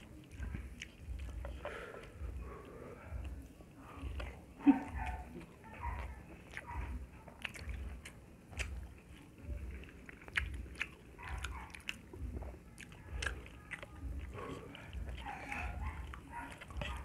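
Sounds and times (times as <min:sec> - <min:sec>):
chewing food: 0:00.0 - 0:17.0
wet lip smacks: 0:04.2 - 0:17.0.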